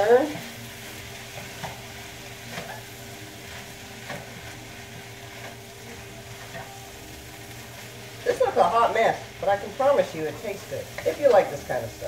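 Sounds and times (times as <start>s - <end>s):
food sizzling in a skillet: 0.0s - 12.0s
spatula scraping a pan: 0.3s - 6.7s.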